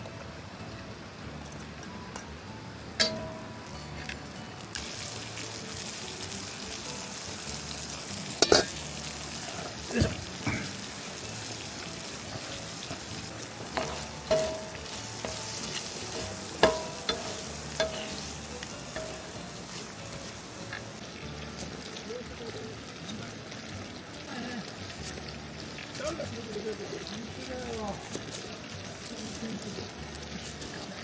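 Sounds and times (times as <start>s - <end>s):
food sizzling in a frying pan: 3.0s - 31.0s
utensil clinking against pan: 8.4s - 8.7s, 13.7s - 18.2s.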